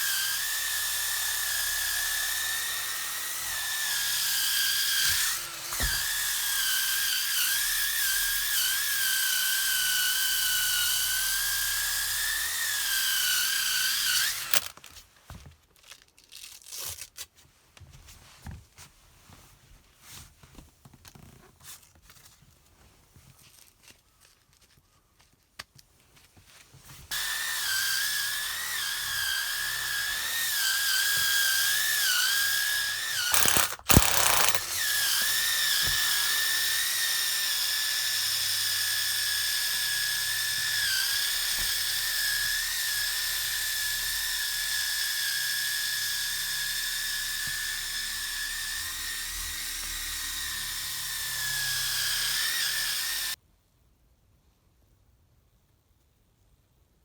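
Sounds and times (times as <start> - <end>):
sander clatter: 12.4 - 14.9, 27.1 - 53.4
electric sander whining: 12.8 - 14.7, 27.1 - 53.4.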